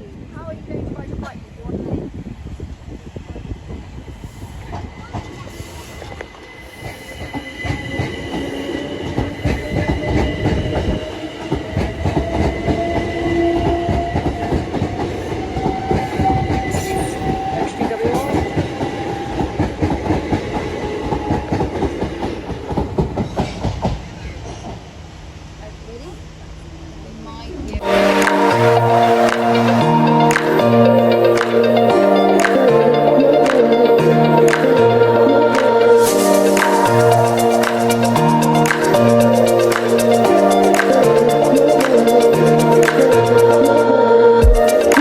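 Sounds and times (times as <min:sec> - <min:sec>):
train whine: 0:00.0 - 0:45.0
train wheels clattering over rails: 0:03.2 - 0:25.0.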